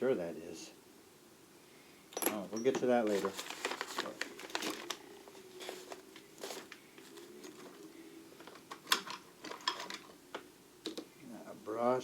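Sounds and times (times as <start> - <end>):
metal tools clinking in drawer: 2.2 - 3.3.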